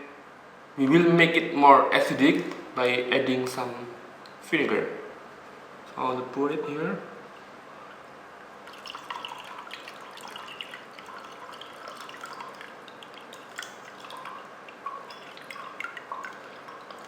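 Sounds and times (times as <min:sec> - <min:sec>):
liquid trickling into cup: 0:07.9 - 0:17.0
small drips and splashes: 0:07.9 - 0:17.0.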